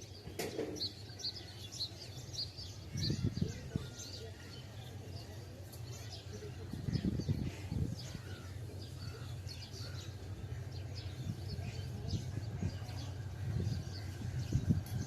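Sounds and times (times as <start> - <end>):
small birds chirping: 0.0 - 15.0
steady low rumble: 6.9 - 15.0.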